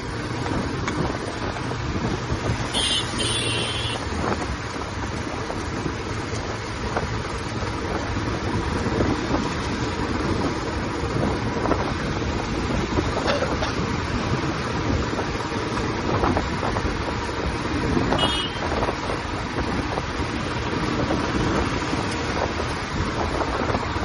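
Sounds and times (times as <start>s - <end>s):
motorcycle engine and exhaust: 0.0s - 24.0s
wind noise on microphone: 0.0s - 24.0s.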